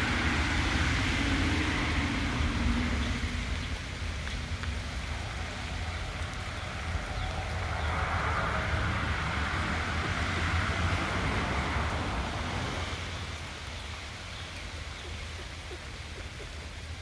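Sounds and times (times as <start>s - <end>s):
loud rushing noise: 0.0s - 3.4s
steady rain falling: 0.0s - 17.0s.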